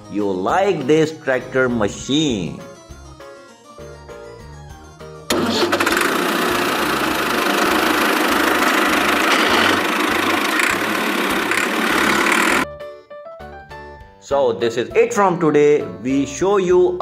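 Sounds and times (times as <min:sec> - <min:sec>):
engine running loudly: 0:05.3 - 0:12.6.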